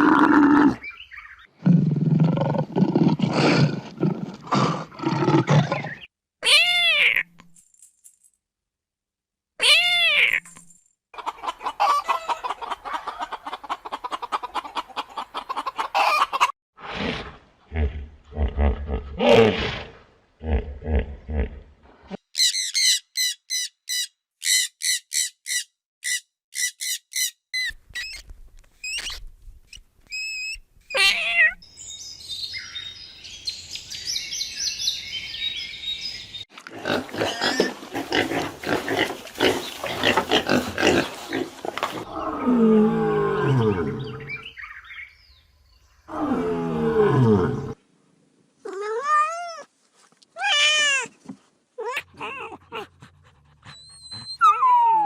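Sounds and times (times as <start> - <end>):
high animal chirps: 22.4 - 31.7
rising and falling animal calls: 39.5 - 45.0
deep falling animal calls: 41.9 - 44.5.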